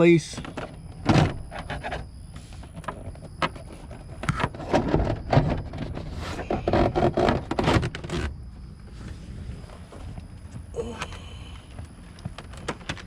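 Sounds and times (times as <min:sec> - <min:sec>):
scraping and rubbing: 0:03.5 - 0:09.8.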